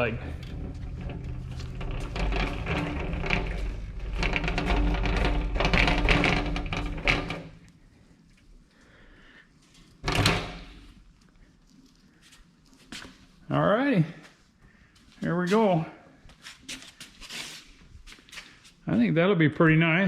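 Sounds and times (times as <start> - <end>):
metal cart rolling and rattling: 0.0 - 7.7, 9.9 - 11.2.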